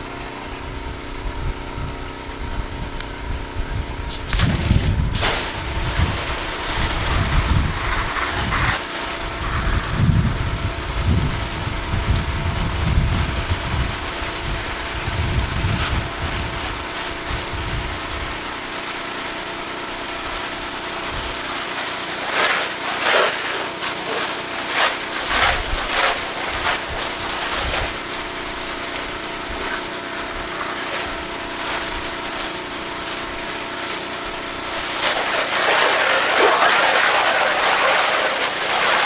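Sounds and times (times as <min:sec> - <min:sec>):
pressure washer engine running: 0:00.0 - 0:39.0
water spray hissing: 0:05.1 - 0:10.0, 0:21.4 - 0:39.0.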